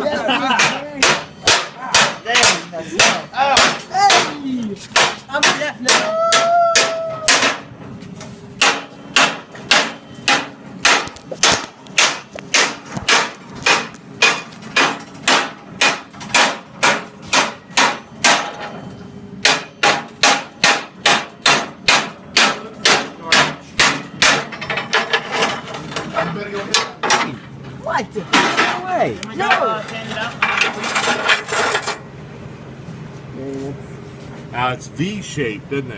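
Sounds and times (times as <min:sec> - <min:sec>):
hammer striking steel: 0:00.4 - 0:07.7, 0:08.6 - 0:25.5.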